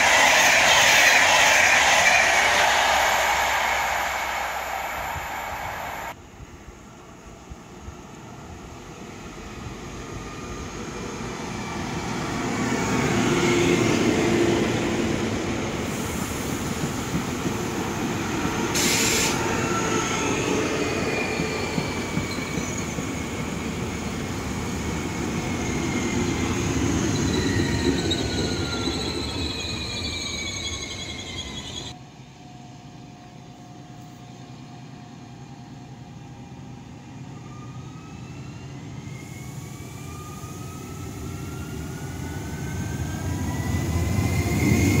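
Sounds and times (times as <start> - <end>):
falling whines: 0.0 - 6.2
train passing on rails: 0.0 - 45.0
brief hiss: 18.8 - 19.4.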